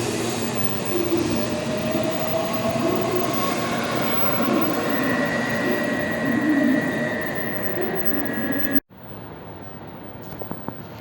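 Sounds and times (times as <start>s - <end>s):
high whine: 0.0s - 8.8s
motor whine: 0.0s - 8.8s
subway train rumble: 0.0s - 8.8s.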